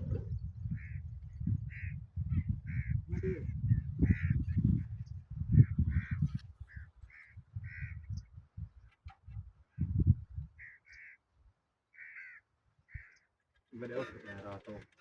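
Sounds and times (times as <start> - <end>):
crow cawing: 10.6 - 11.3, 11.9 - 13.4.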